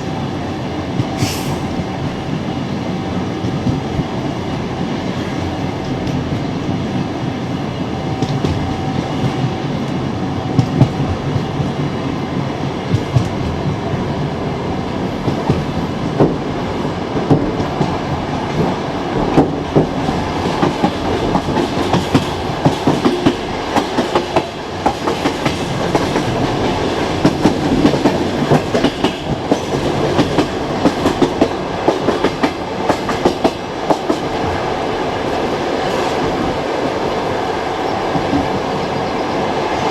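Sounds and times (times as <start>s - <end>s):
train rumbling: 0.0s - 39.9s
train wheels clacking over rail joints: 17.2s - 34.4s.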